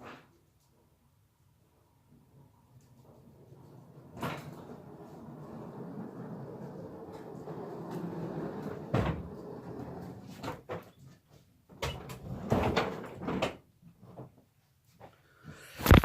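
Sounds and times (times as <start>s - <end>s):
door opening and shutting: 8.5s - 9.8s.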